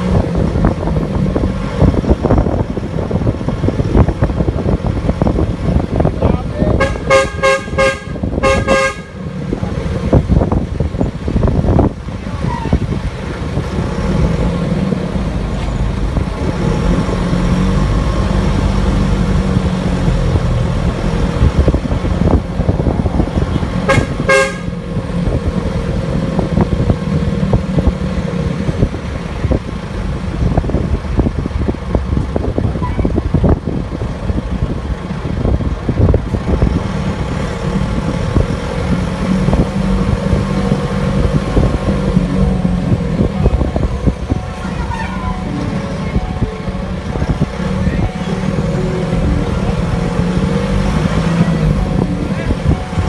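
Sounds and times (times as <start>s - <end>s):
road traffic engine noise: 0.0s - 53.0s
vehicle horns honking: 6.7s - 9.6s, 23.4s - 25.0s, 41.6s - 53.0s.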